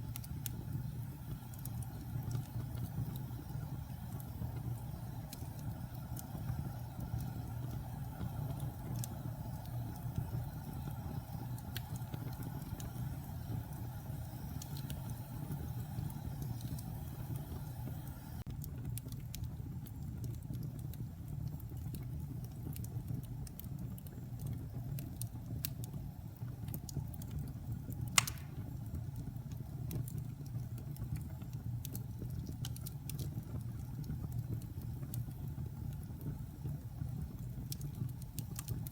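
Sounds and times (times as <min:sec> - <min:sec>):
burning logs crackling: 0:00.0 - 0:38.9
fire flames rumbling: 0:00.0 - 0:38.9
loud sharp pop: 0:28.2 - 0:28.6.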